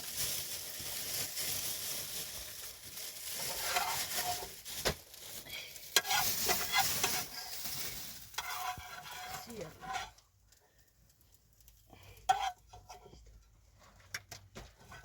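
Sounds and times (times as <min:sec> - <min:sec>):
utensil stirring in a pan: 0:03.4 - 0:04.6, 0:05.5 - 0:14.2
food sizzling in a frying pan: 0:05.8 - 0:10.2.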